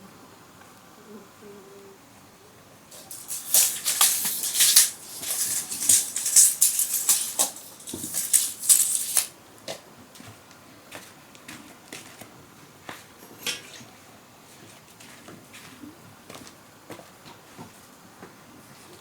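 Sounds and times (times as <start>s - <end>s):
dry rattling and rustling: 2.9s - 9.3s.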